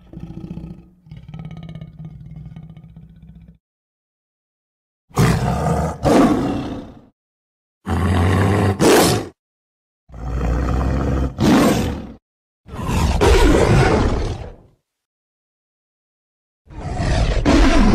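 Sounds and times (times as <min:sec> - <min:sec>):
lion roaring: 0:00.0 - 0:03.6, 0:05.1 - 0:07.1, 0:07.9 - 0:09.3, 0:10.1 - 0:14.7, 0:16.7 - 0:17.9.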